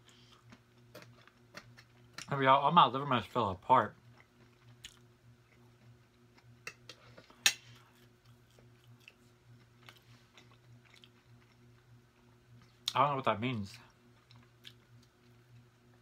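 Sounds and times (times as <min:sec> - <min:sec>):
person chewing: 0:00.0 - 0:02.3, 0:04.0 - 0:06.9, 0:07.7 - 0:13.0, 0:14.0 - 0:15.7
steady low hum: 0:00.0 - 0:16.0.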